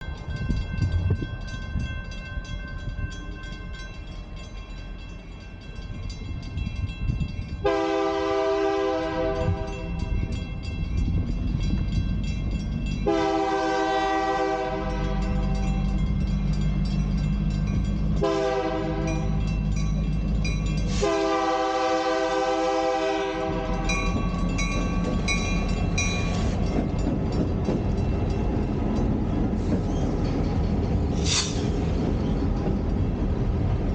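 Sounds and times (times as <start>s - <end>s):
railroad crossing bell ringing: 0.0s - 33.9s
train rumbling past: 0.0s - 33.9s
locomotive horn blasts: 7.6s - 10.1s, 13.0s - 15.7s, 18.2s - 19.4s, 20.9s - 24.1s.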